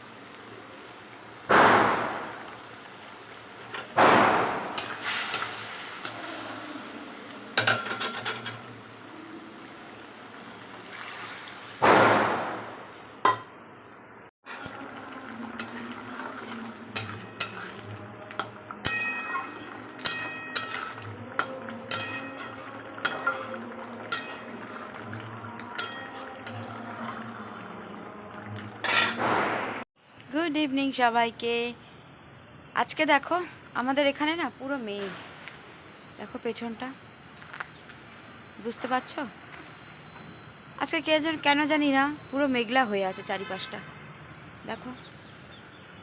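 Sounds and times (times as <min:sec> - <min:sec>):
firecracker bangs with echo: 0:01.5 - 0:02.4, 0:04.0 - 0:04.9, 0:11.8 - 0:12.8
utensils clinking on pots: 0:04.6 - 0:06.2, 0:07.6 - 0:08.8, 0:13.2 - 0:13.5, 0:14.5 - 0:27.4, 0:28.8 - 0:29.2.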